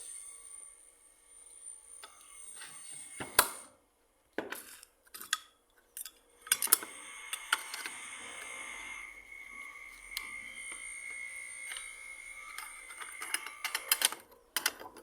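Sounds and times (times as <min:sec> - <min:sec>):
metal parts clicking and clinking: 0:04.5 - 0:08.2, 0:10.1 - 0:15.0
metal scraping: 0:06.3 - 0:14.4.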